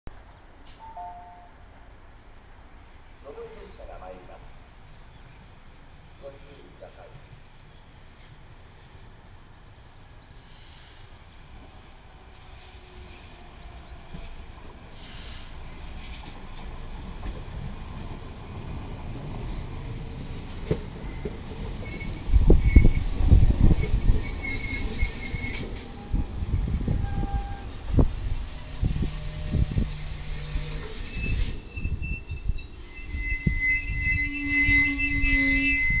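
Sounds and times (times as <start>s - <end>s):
electric train approaching: 7.4s - 36.0s
wheel and brake squeal: 21.0s - 36.0s.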